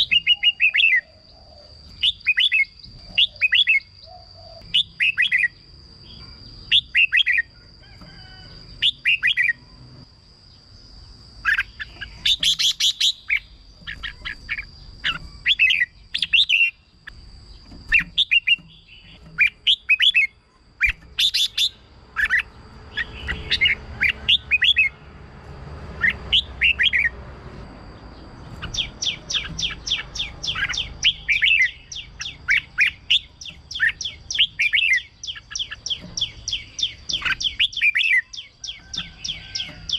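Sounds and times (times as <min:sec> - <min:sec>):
bird singing whistled phrases: 0:00.0 - 0:01.2.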